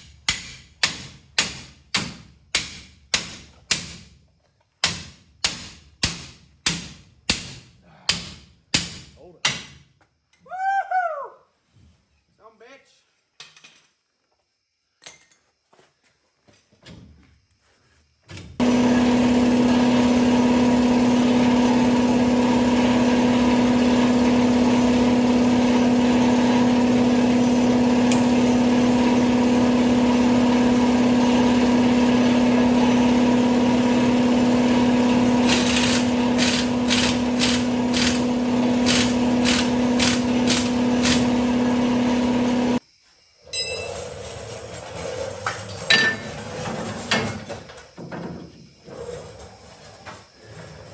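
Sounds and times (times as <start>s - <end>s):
motor-driven machine running: 18.6s - 42.8s.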